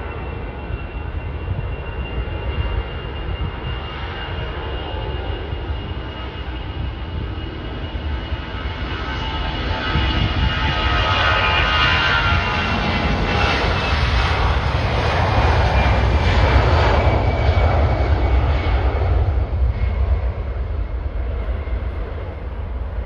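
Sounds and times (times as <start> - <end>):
jet airliner engine roar: 0.0 - 23.0.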